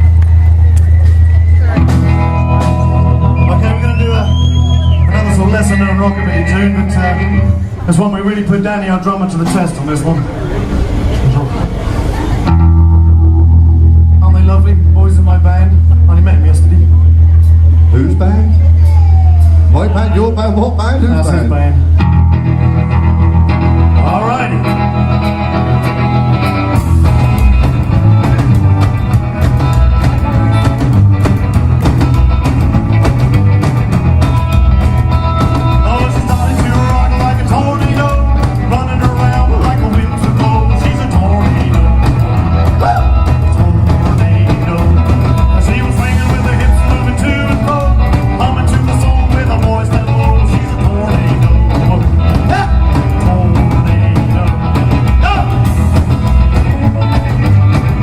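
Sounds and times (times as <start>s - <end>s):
drums beating: 0.0s - 7.8s, 18.6s - 20.4s, 22.7s - 58.0s
guitar: 0.0s - 58.0s
live rock band playing: 0.0s - 58.0s.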